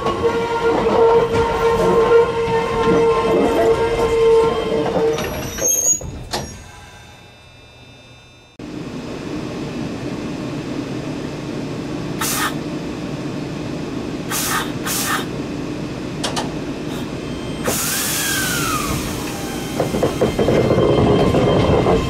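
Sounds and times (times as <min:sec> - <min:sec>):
brake squeals and click: 0:00.0 - 0:07.0
railcar whine: 0:00.0 - 0:22.0
short hiss of air: 0:12.2 - 0:12.6, 0:14.3 - 0:15.3.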